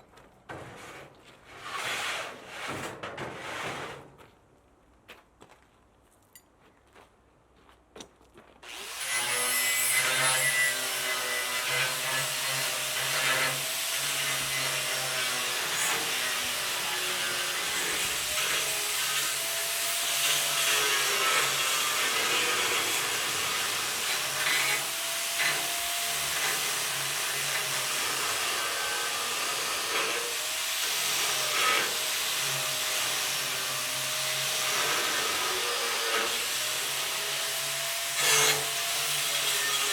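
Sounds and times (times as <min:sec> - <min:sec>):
power tool cutting: 0:08.7 - 0:39.9.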